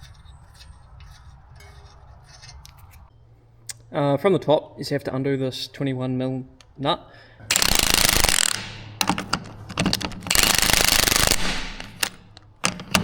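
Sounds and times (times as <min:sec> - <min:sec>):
pneumatic impact wrench rattling: 0:07.5 - 0:13.0.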